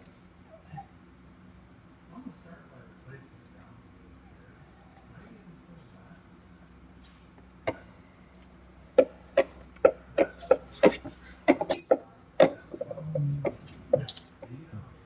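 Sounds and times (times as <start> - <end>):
hand tool clicks and knocks: 9.0 - 12.8.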